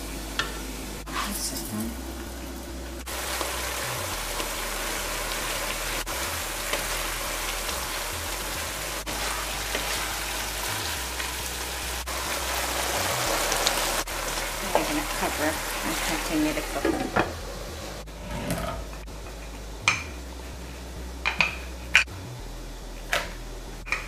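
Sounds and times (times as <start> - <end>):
pumpkin sizzling in oil: 0.0 - 18.0
wooden spatula stirring: 9.1 - 10.4.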